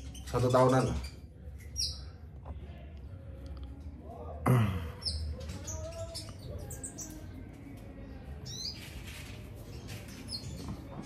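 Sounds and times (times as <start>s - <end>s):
cage birds chirping: 0.0s - 11.0s.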